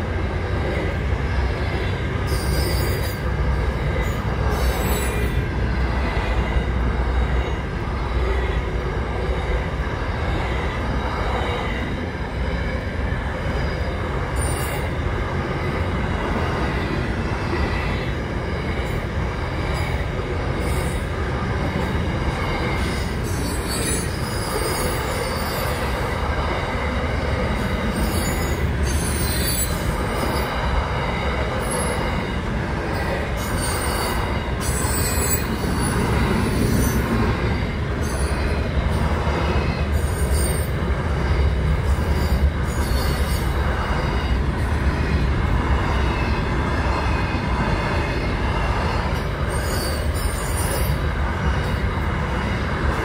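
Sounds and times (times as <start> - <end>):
freight train rumbling on rails: 0.0 - 53.0
high wheel squeal: 2.3 - 3.2, 22.5 - 25.9, 27.9 - 30.5, 33.4 - 37.1, 49.5 - 51.0.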